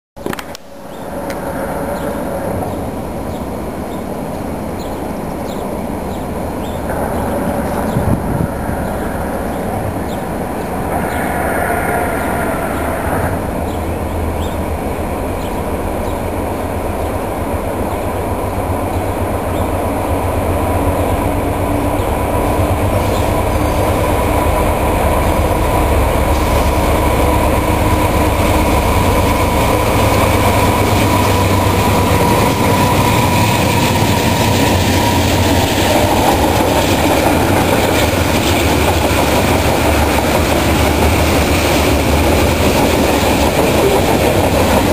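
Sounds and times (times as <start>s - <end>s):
train wheels clattering on rails: 15.3s - 44.9s.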